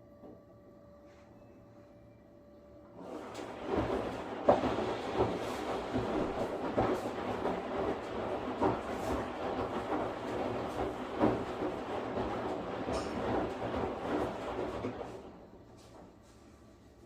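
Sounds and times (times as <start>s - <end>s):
washing machine hum: 0.0s - 17.0s
washing machine drum turning: 2.9s - 16.2s
water and laundry sloshing: 2.9s - 17.0s
washing machine thuds: 3.2s - 15.3s.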